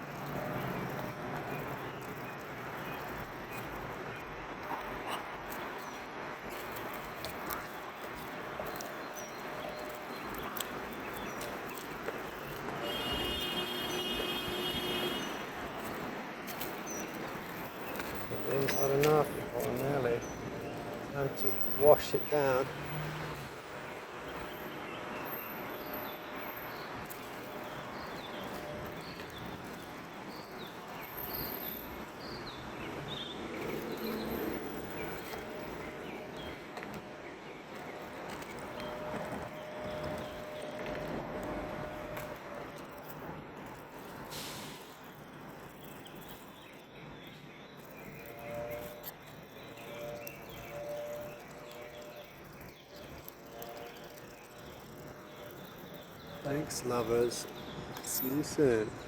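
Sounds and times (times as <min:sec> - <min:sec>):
ducks pecking seeds: 0:00.0 - 0:23.5, 0:25.8 - 0:59.0
outdoor hum: 0:00.0 - 0:59.0
bird chirping: 0:06.7 - 0:23.4, 0:24.2 - 0:36.6, 0:44.5 - 0:59.0
multi-tone whine: 0:33.6 - 0:44.0.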